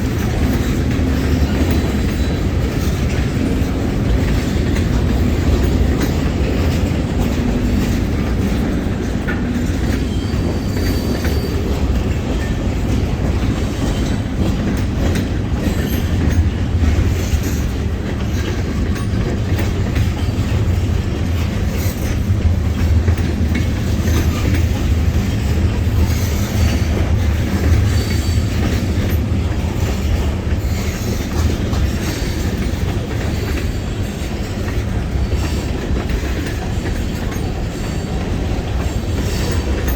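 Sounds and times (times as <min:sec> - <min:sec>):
freight train wheels on rails: 0:00.0 - 0:39.9
faint wheel squeals: 0:10.1 - 0:11.6.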